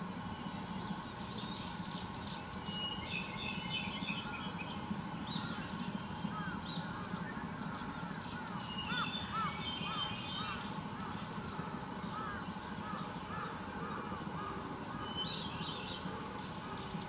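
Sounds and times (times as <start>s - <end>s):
birds calling: 6.3s - 17.0s.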